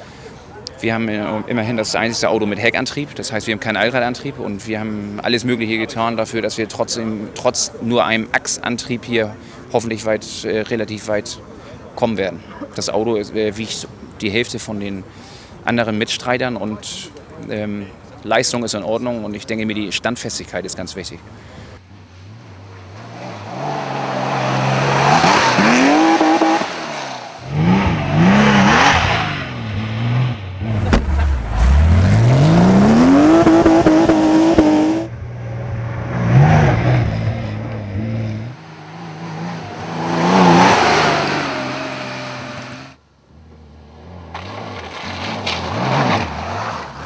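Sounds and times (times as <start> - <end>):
rally car engine revving: 22.0 - 47.0.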